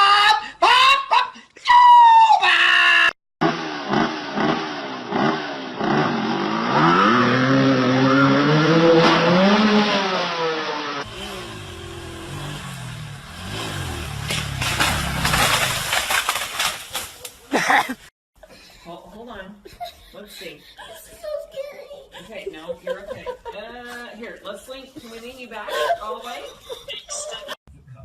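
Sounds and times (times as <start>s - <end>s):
shrill cry: 0.0s - 3.1s
engine revving: 3.4s - 17.0s.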